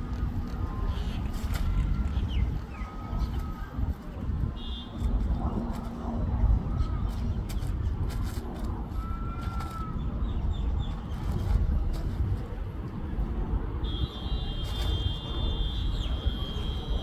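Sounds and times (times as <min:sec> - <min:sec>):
low rumble of distant traffic: 0:00.0 - 0:17.0.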